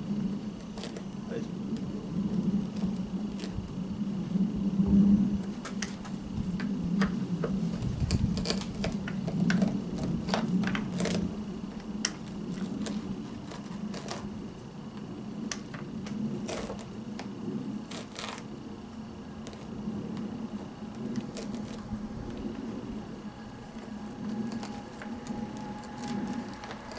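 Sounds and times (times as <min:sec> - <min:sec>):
low steady hum: 0:00.0 - 0:26.9
tool scraping brush roll: 0:07.2 - 0:14.6, 0:16.1 - 0:18.6, 0:19.4 - 0:26.9.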